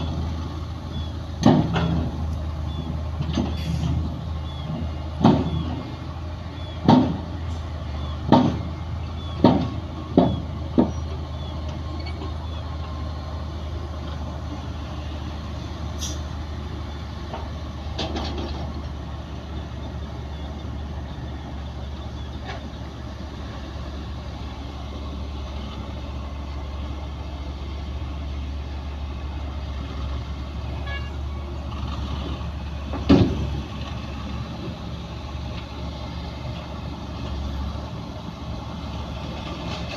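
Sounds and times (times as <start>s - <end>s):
diesel machinery rumbling: 0.0s - 39.9s
sharp knocks: 6.8s - 7.3s, 9.4s - 11.0s.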